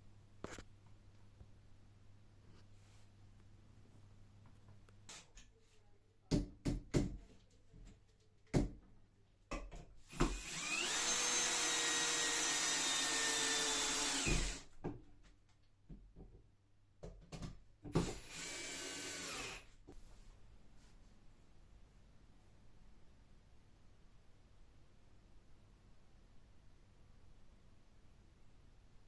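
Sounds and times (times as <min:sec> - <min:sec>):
small electric motor whining: 0:10.1 - 0:14.6, 0:18.0 - 0:19.6.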